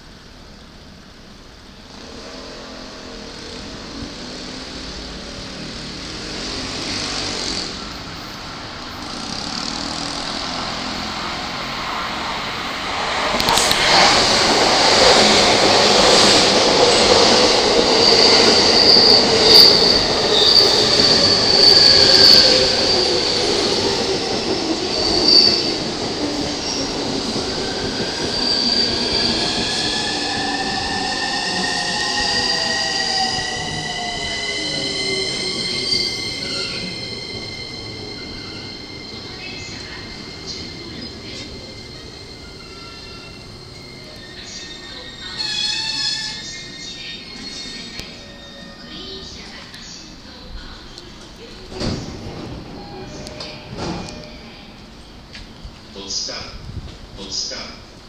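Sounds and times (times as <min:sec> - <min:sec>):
electric train pulling in: 0:00.0 - 0:58.0
wheel and brake squeal: 0:18.0 - 0:23.4, 0:24.8 - 0:25.8, 0:27.6 - 0:49.2.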